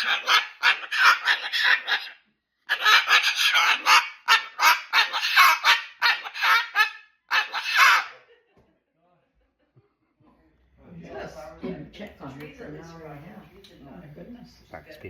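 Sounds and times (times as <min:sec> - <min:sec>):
cockatoo squawking: 0:00.0 - 0:08.2.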